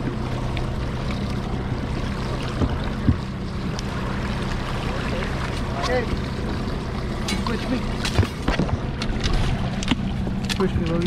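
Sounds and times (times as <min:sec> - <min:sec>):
outboard motor running: 0:00.0 - 0:11.0
water noise: 0:00.0 - 0:11.0.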